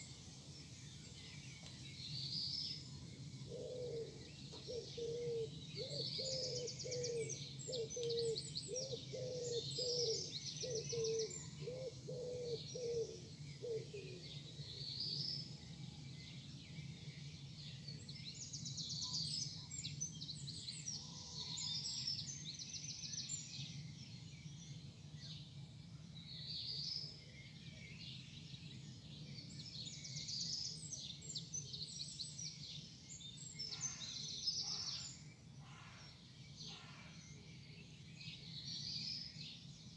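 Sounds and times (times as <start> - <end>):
low cooing call: 3.5 - 14.3.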